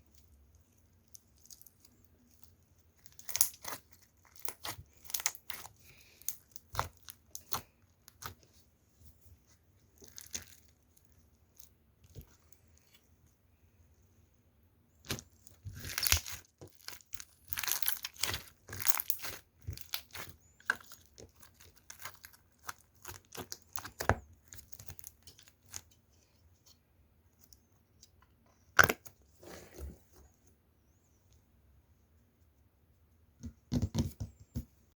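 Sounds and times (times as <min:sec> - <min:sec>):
slime crackling and popping: 0:03.0 - 0:08.4, 0:15.0 - 0:25.8.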